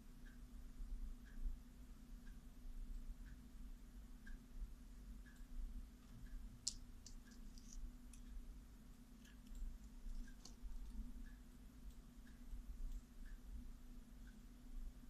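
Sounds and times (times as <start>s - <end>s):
low steady hum: 0.0s - 15.0s
soft repeating tick: 0.0s - 15.0s
faint sharp clicks: 5.2s - 8.4s.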